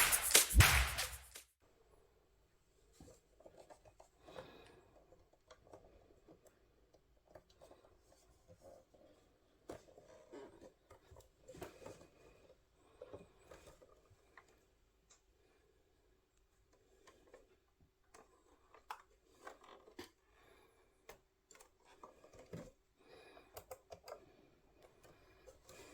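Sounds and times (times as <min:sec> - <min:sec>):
rubbing noises: 0:00.0 - 0:01.4.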